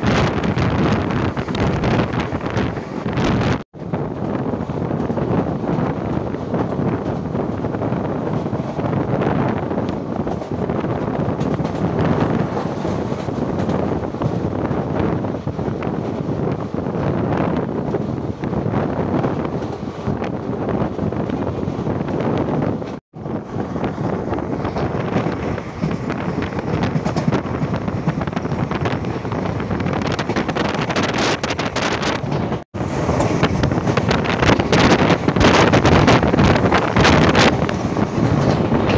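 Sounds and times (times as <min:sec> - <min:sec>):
train rushing at speed: 0:00.0 - 0:38.9
wind buffeting microphone: 0:00.0 - 0:38.9
sharp clicks and rattles: 0:24.7 - 0:32.6.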